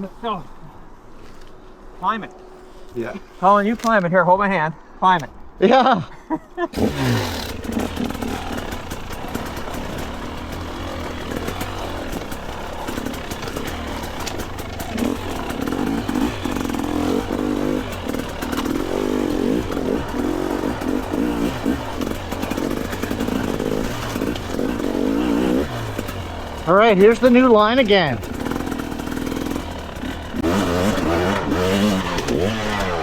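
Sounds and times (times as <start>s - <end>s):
dirt bike engine revving: 6.7s - 33.0s.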